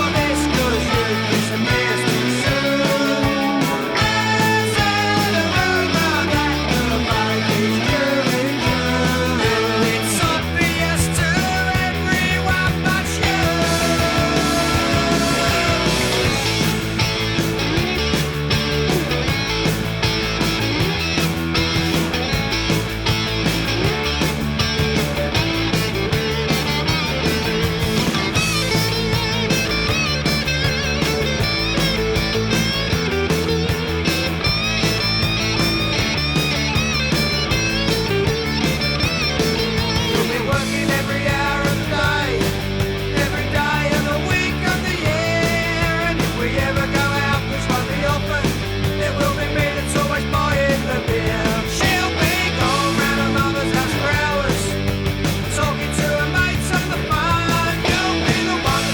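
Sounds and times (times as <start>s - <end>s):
punk rock band playing: 0.0s - 58.9s.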